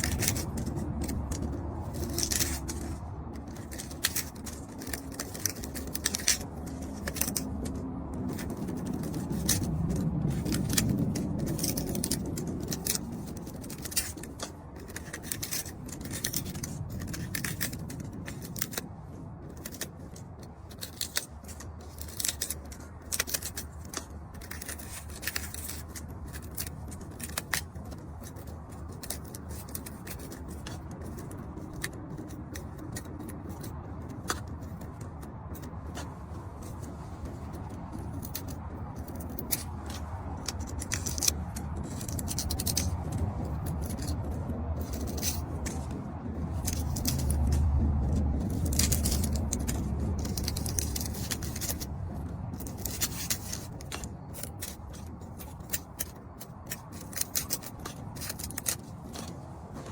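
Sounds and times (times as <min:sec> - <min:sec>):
low rumble: 0:00.0 - 0:20.7, 0:30.4 - 0:56.0
sharp clicks and snips: 0:00.0 - 0:59.9.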